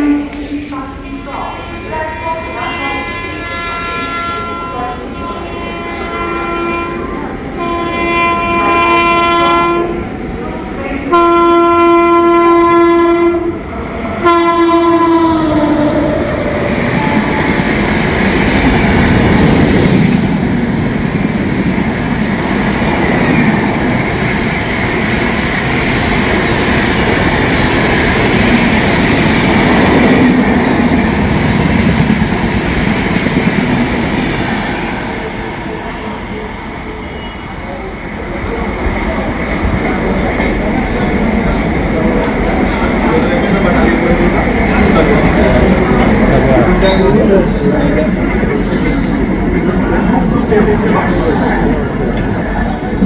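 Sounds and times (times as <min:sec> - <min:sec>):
train horn blasts: 0:01.2 - 0:10.1, 0:11.1 - 0:13.6, 0:14.2 - 0:16.2
train wheels clacking on rails: 0:14.0 - 0:53.0.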